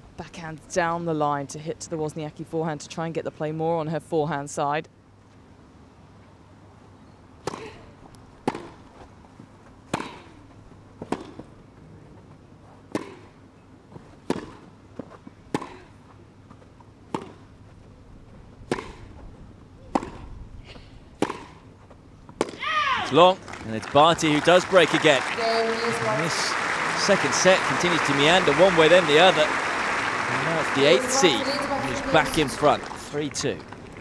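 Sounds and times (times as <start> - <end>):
racket hitting tennis ball: 8.4 - 8.8, 9.9 - 10.4, 11.0 - 11.4, 12.9 - 13.3, 14.2 - 14.7, 15.5 - 16.0, 17.1 - 17.4, 18.6 - 19.1, 19.9 - 20.3, 21.2 - 21.6
tennis ball bouncing: 8.4 - 8.8, 9.9 - 10.4, 11.0 - 11.5, 12.9 - 13.3, 14.2 - 14.7, 15.5 - 16.0, 17.1 - 17.5, 18.6 - 19.2, 19.9 - 20.3, 21.2 - 21.6, 22.3 - 22.7, 27.0 - 33.0.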